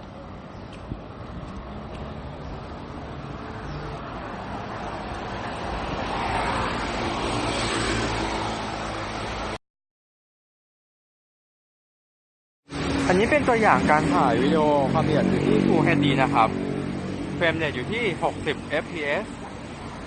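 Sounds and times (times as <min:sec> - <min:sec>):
street traffic noise: 0:00.0 - 0:09.6, 0:12.7 - 0:20.0
car passing: 0:01.2 - 0:09.6, 0:12.7 - 0:20.0.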